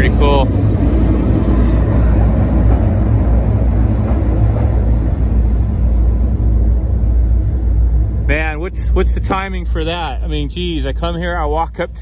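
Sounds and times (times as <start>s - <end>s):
freight train rumbling: 0.0s - 12.0s
train rattle: 0.0s - 12.0s.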